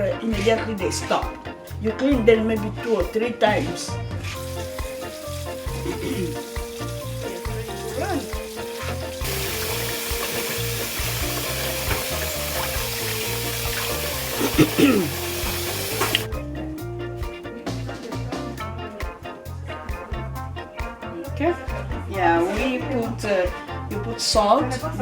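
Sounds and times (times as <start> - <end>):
background music: 0.0 - 25.0
frying sizzle in pan: 4.4 - 16.3.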